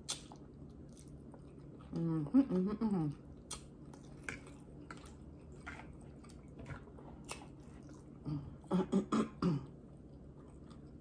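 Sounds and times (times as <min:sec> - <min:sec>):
chewing noodles: 0:03.2 - 0:08.4, 0:09.9 - 0:11.0.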